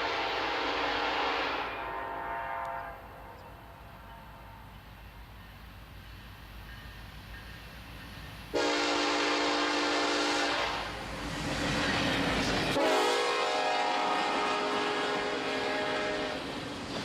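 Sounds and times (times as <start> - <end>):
train air horn blasts: 0.0 - 4.7, 8.5 - 11.0, 12.8 - 16.4.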